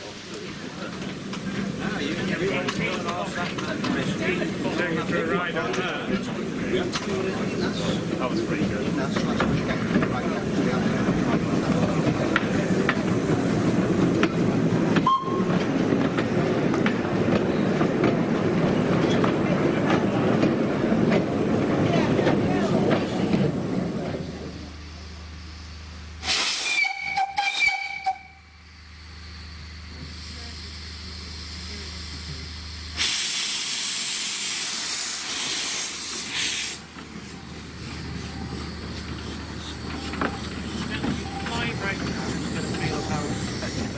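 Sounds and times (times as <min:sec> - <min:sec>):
steam locomotive hissing steam: 0:00.0 - 0:20.8, 0:23.9 - 0:43.9
train rumbling along track: 0:00.0 - 0:43.9
wheels clicking over rail joints: 0:00.3 - 0:24.2, 0:36.7 - 0:43.9.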